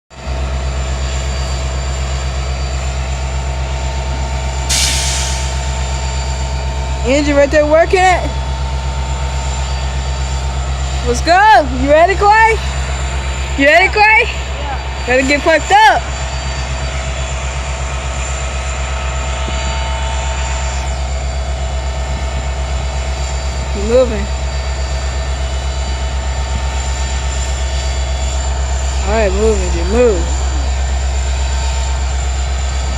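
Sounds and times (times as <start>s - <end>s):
diesel locomotive engine rumbling: 0.1s - 32.9s
air hissing: 4.7s - 6.1s.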